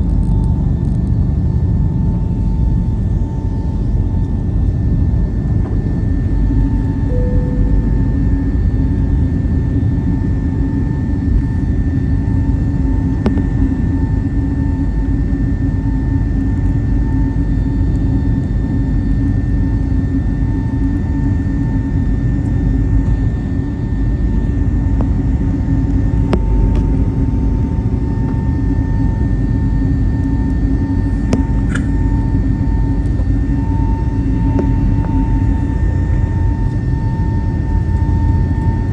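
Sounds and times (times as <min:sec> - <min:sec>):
high whine: 0:07.0 - 0:10.4
jet engines and airflow roaring: 0:21.1 - 0:38.9.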